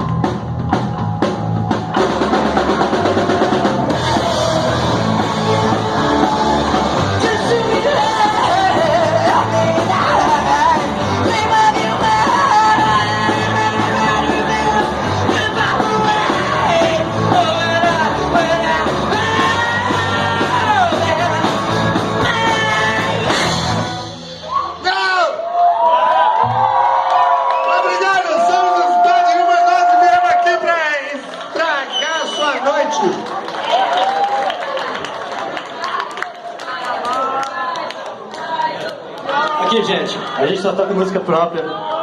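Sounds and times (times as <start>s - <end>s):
rock band playing: 0.0s - 25.0s
person singing and shouting: 3.8s - 23.4s.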